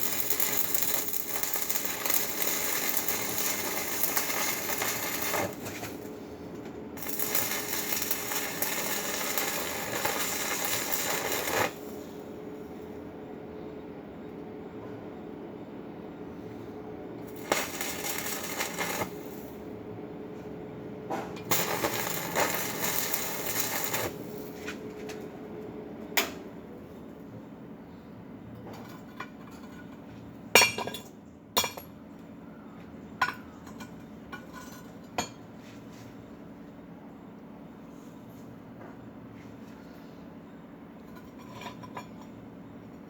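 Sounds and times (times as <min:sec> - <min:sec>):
arc welding crackle: 0:00.0 - 0:06.2, 0:07.0 - 0:12.3, 0:17.2 - 0:19.6, 0:21.4 - 0:24.6.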